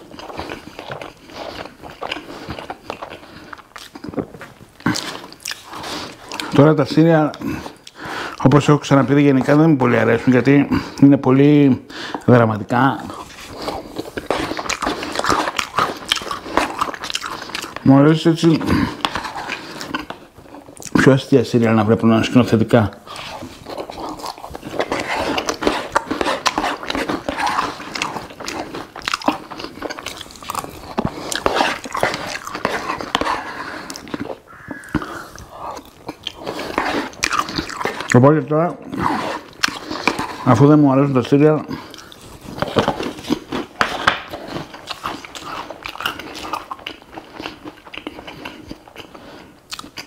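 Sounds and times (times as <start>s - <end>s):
wet chewing clicks: 0.0s - 11.1s, 12.0s - 50.0s
crunching bites: 13.0s - 17.9s, 23.1s - 38.2s.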